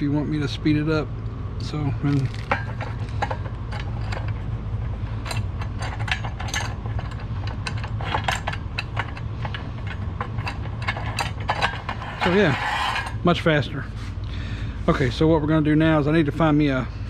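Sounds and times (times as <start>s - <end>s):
steady low hum: 0.0s - 17.0s
metal hardware clicking and clinking: 2.0s - 13.2s.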